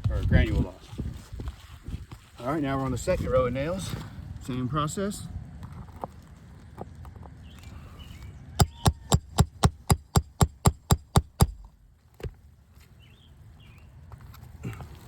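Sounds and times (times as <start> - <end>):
hammer striking metal nail puller: 8.6 - 11.8.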